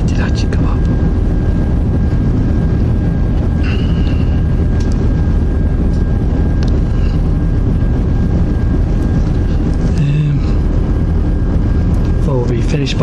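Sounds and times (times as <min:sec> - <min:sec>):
thin steady whine: 0:00.0 - 0:13.0
train rumble from on board: 0:01.6 - 0:10.8.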